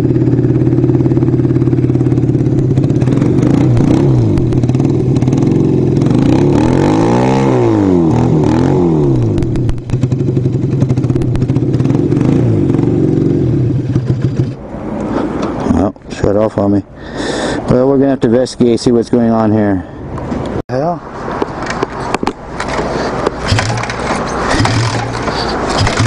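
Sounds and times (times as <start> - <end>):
motorcycle engine revving: 0.0 - 15.9, 21.6 - 26.0.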